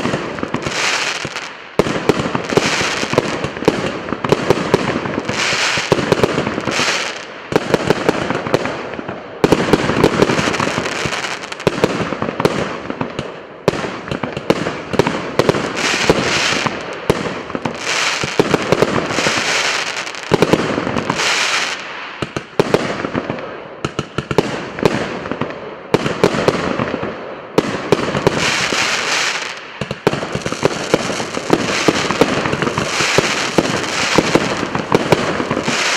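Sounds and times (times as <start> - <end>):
fireworks crackling and popping: 0.0 - 35.9.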